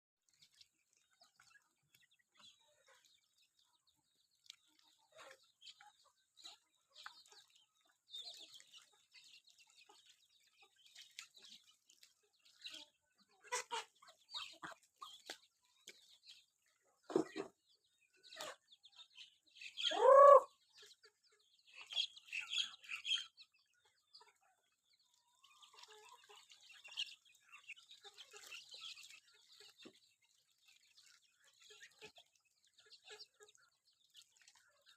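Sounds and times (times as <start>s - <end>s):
chickens clucking: 1.1s - 34.9s
chicken squawk: 19.8s - 20.6s.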